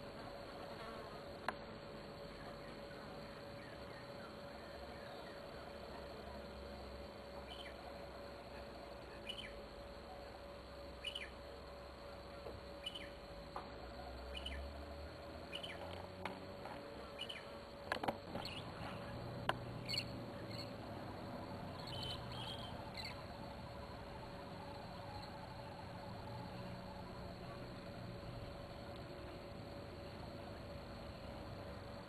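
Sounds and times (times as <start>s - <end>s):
faint hum: 0.0s - 32.0s
bird chirping: 9.1s - 9.6s, 11.0s - 11.3s, 12.8s - 13.2s, 14.3s - 14.6s, 15.5s - 15.9s, 17.2s - 17.5s, 18.3s - 19.1s, 19.8s - 20.8s, 21.8s - 23.2s.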